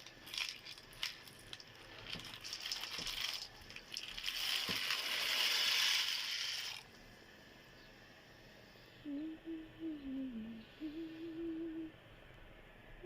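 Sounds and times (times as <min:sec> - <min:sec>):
dry pasta clattering: 0:00.0 - 0:06.9
boiling water hiss: 0:00.0 - 0:07.6.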